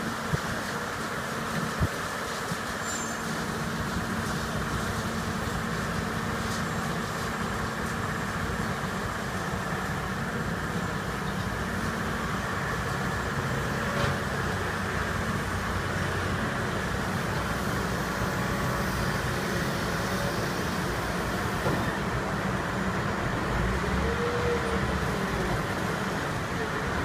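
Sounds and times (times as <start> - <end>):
diesel machinery rumbling: 0.0 - 27.0.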